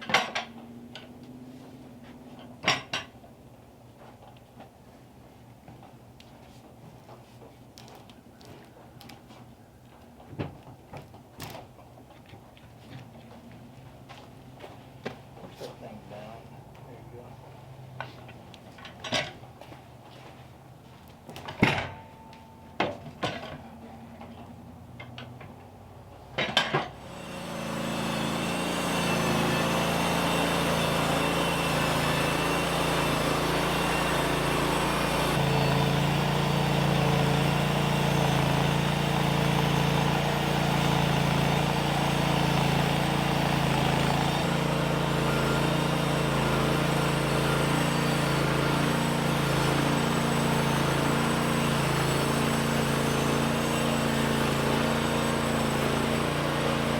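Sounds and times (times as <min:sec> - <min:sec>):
engine running steadily: 0:27.0 - 0:56.9.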